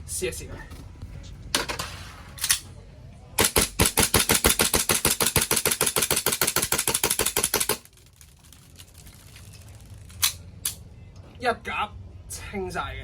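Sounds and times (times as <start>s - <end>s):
airsoft pistol firing rapidly: 3.4s - 7.9s.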